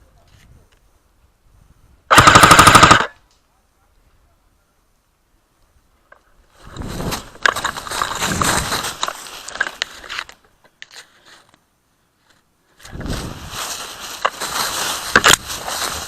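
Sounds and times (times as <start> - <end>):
rustling and crunching undergrowth: 5.6 - 16.0.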